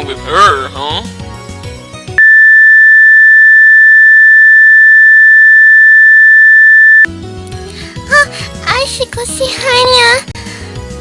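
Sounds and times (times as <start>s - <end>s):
high-pitched electronic beep: 2.2s - 7.1s.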